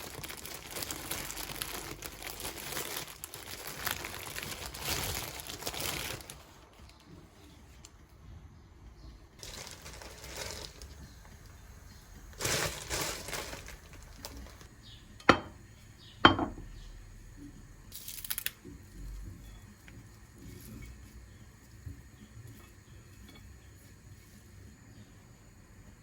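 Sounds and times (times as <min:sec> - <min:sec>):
rustling and scraping: 0:09.4 - 0:14.7, 0:18.6 - 0:24.6.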